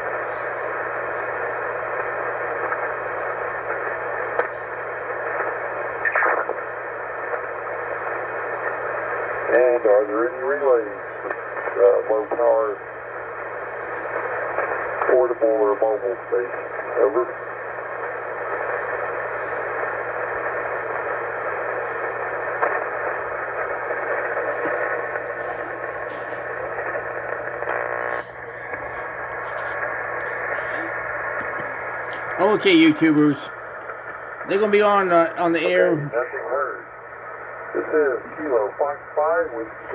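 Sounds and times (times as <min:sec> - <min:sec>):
radio crackling burst: 0:00.0 - 0:39.9
radio static hiss: 0:00.0 - 0:39.9.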